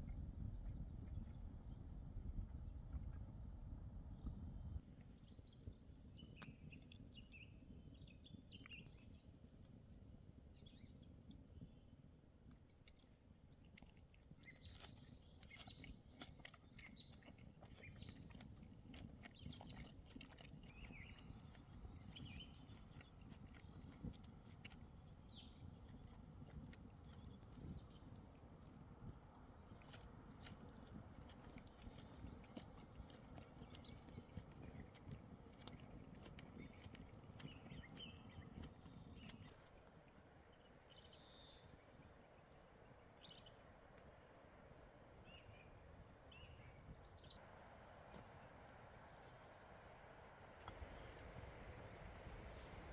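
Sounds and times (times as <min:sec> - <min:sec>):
small birds chirping: 0:05.1 - 0:47.4.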